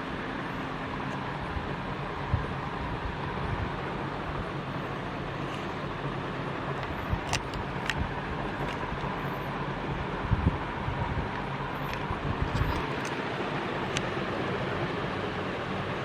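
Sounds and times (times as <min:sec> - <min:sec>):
ceiling fan air rush: 0:00.0 - 0:16.0
faint fan hum: 0:00.0 - 0:16.0
sharp clicks: 0:06.8 - 0:09.2, 0:11.3 - 0:13.3.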